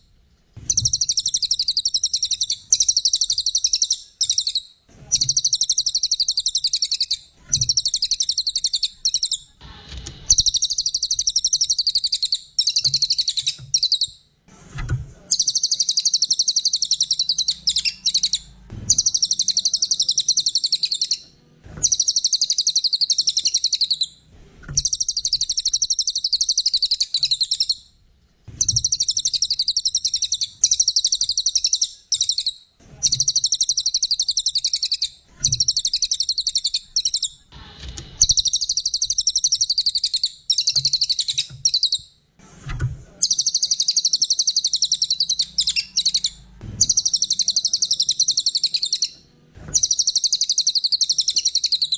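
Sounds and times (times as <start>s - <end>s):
bird trilling chatter: 0.7s - 9.6s, 10.3s - 14.1s, 15.3s - 21.2s, 21.8s - 24.2s, 24.8s - 27.8s, 28.7s - 37.4s, 43.2s - 49.2s, 49.8s - 51.9s.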